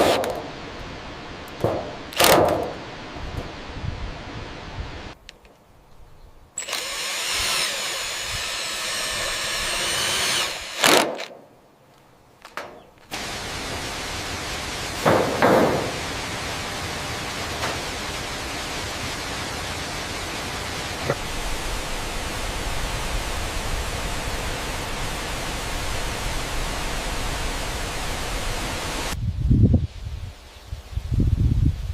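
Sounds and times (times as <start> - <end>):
power drill whining: 6.6 - 11.0
steady rushing noise: 13.1 - 31.9.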